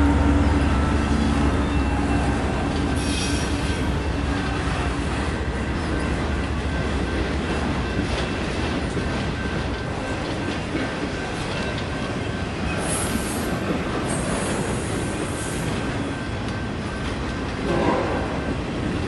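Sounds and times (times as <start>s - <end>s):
locomotive low hum: 0.0s - 12.9s
train wheels rumbling on rail: 0.0s - 19.0s
high wheel squeal: 0.6s - 4.0s.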